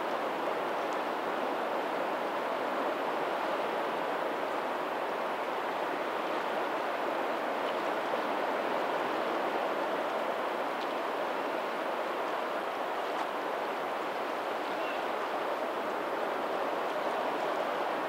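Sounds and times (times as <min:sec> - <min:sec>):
rush of water: 0:00.0 - 0:18.0.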